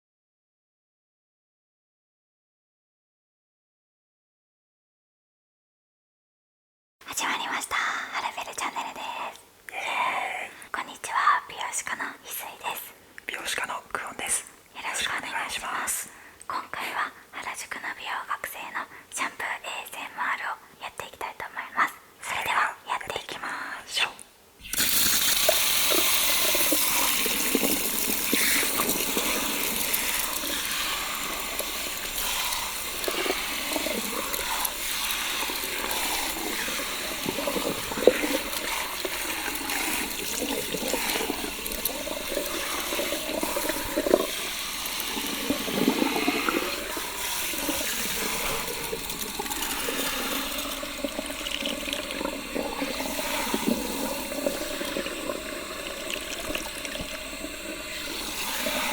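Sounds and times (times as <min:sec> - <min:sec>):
water spraying from shower head: 0:24.6 - 0:51.2, 0:57.2 - 0:58.9
water splashing: 0:24.6 - 0:58.9.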